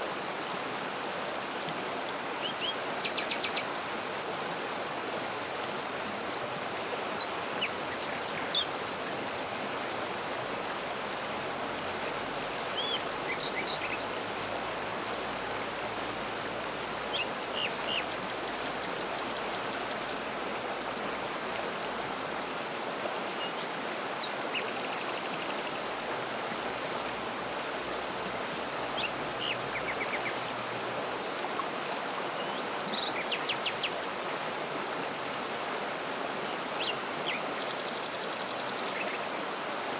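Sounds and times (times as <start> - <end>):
waterfall rushing water: 0.0 - 39.9.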